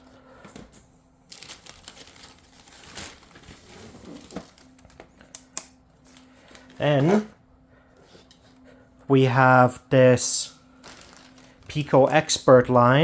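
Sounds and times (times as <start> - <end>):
packaging crinkling and rustling: 1.2 - 7.3, 10.7 - 12.4.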